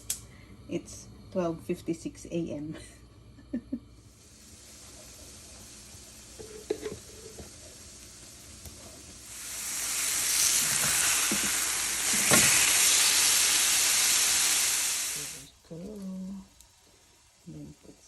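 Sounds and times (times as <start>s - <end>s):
burger patty sizzling in pan: 4.0s - 18.0s.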